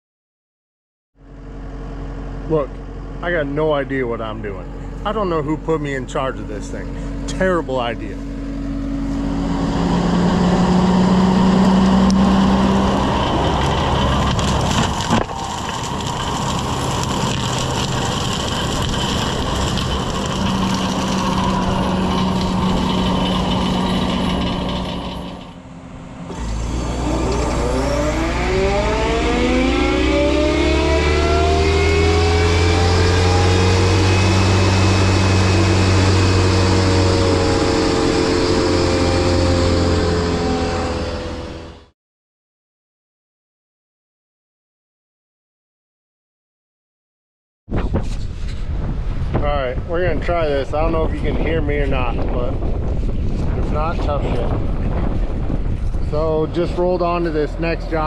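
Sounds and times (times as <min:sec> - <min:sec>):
rising machine whine: 0:01.2 - 0:41.9, 0:50.7 - 0:58.0
excavator with mulching head running: 0:01.3 - 0:41.9.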